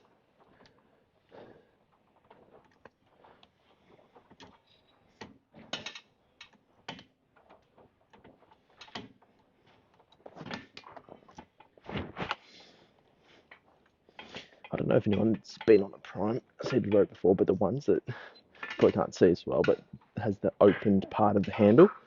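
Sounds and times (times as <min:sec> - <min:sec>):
gym machine clunking and rattling: 0:00.0 - 0:12.0, 0:13.4 - 0:17.4, 0:18.3 - 0:21.7.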